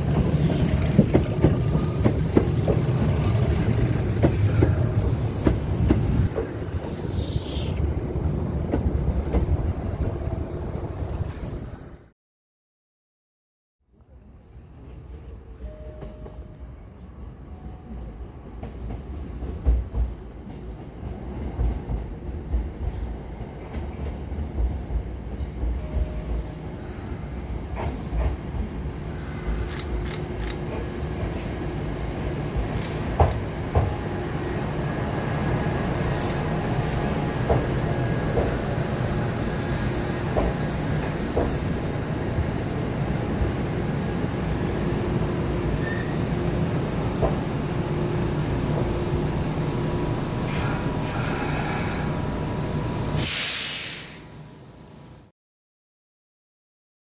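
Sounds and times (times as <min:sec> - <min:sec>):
electric train approaching: 0:00.0 - 0:12.0, 0:15.6 - 0:55.2
high wheel squeal: 0:43.9 - 0:46.5, 0:48.3 - 0:53.2.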